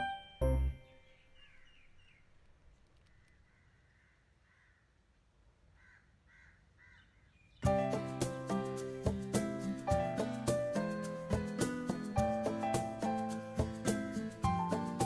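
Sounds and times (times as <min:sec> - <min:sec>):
music: 0:00.0 - 0:01.0, 0:07.6 - 0:15.0.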